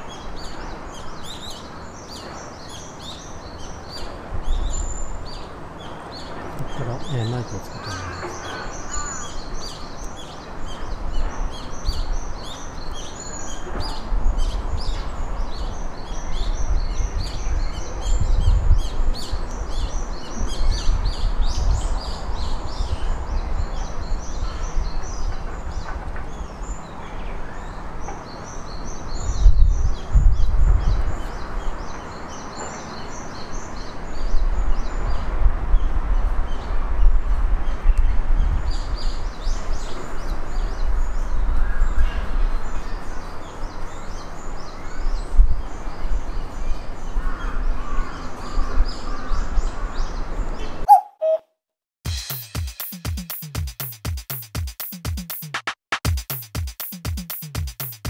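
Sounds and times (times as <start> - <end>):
small birds chirping: 0.0 - 35.2, 48.9 - 51.4.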